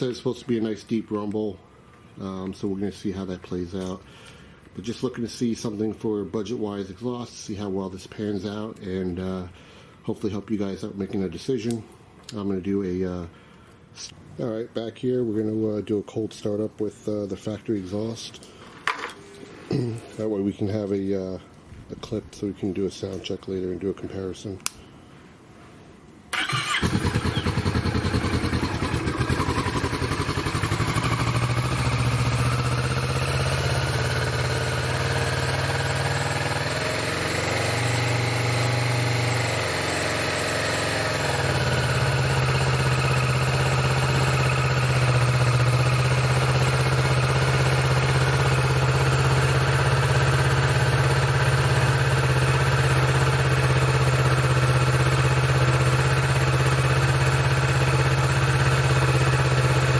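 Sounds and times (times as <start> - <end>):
motorcycle engine idling: 26.4 - 59.9.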